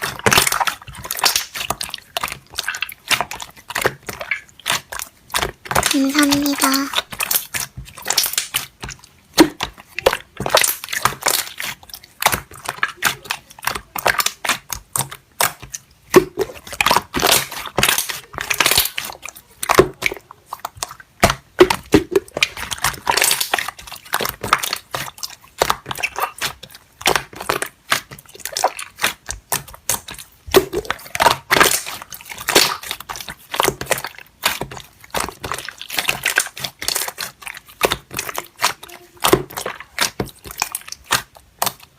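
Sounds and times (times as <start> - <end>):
slime crackling and popping: 0.0 - 41.9
squishy slime bursts: 20.5 - 41.9.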